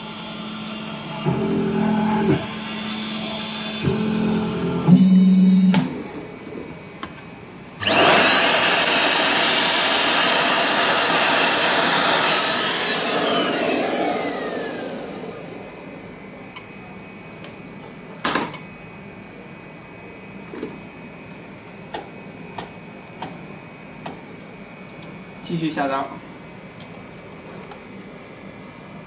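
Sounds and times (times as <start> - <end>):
small vacuum cleaner running: 0.0 - 6.7, 7.8 - 17.1
vacuum winding down whine: 0.0 - 6.8, 7.8 - 17.1.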